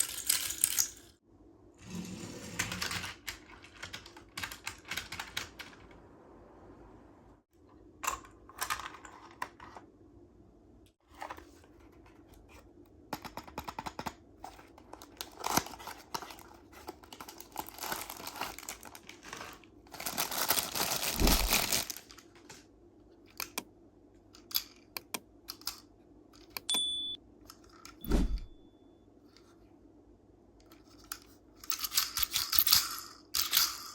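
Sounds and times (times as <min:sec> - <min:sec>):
packaging clicks and taps: 0:13.1 - 0:17.4
paper and plastic crinkling: 0:14.4 - 0:22.6.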